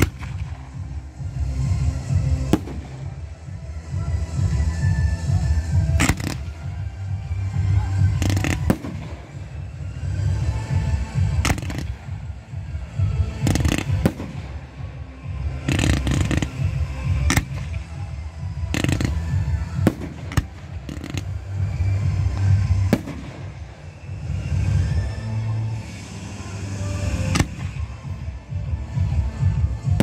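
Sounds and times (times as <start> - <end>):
fireworks bangs: 0.0 - 3.4, 4.4 - 6.9, 7.6 - 12.6, 13.2 - 18.0, 18.6 - 25.0, 27.0 - 28.1
low rumble: 0.0 - 30.0.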